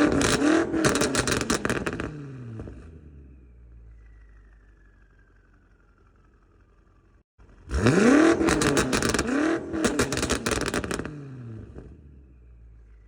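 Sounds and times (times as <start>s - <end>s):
exhaust pops crackling: 0.0s - 2.8s, 8.4s - 11.2s
car engine revving: 0.0s - 4.9s, 7.4s - 13.0s.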